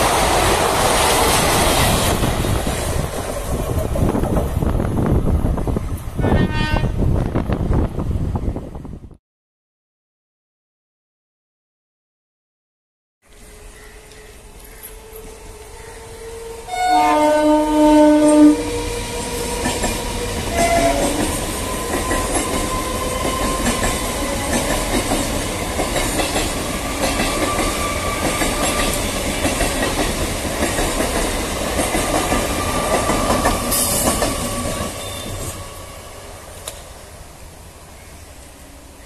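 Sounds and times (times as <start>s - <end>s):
train horn: 6.2s - 7.1s, 13.9s - 24.7s
train wheels clattering over rail joints: 19.5s - 35.5s.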